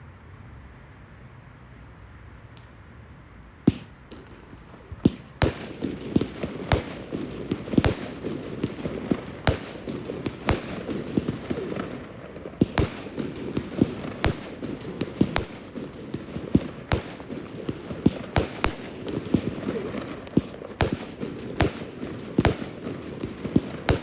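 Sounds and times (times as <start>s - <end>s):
fireworks bangs: 3.7s - 24.0s
fireworks crackling: 3.7s - 24.0s.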